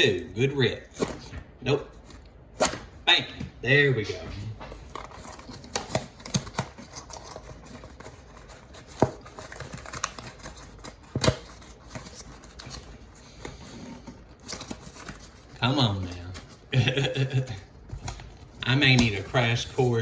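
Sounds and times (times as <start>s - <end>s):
cardboard packaging rustling: 4.1s - 20.0s.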